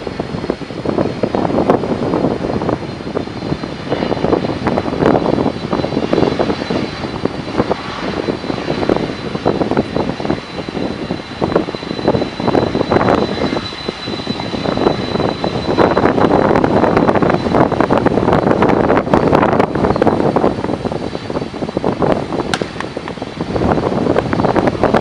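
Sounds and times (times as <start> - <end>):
jet engines roaring with high whine: 0.0 - 25.0
wind buffeting microphone: 0.0 - 25.0.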